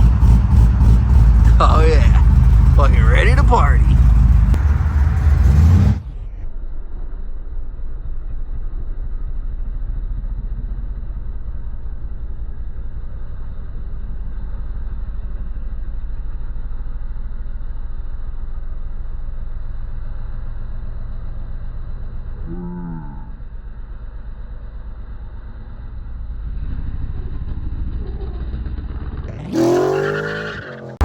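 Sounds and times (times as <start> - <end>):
race car engine idling: 0.0 - 6.2, 23.2 - 29.8.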